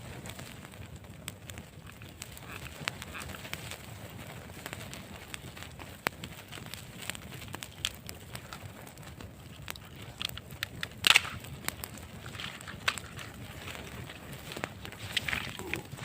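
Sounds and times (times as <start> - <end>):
sharp crackles and clicks: 0.0 - 16.0.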